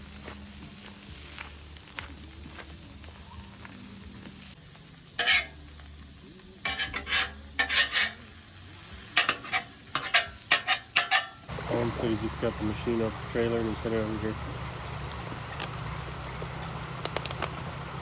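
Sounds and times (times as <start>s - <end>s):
short sharp scraping: 5.2s - 5.6s, 6.7s - 8.2s, 9.2s - 11.4s.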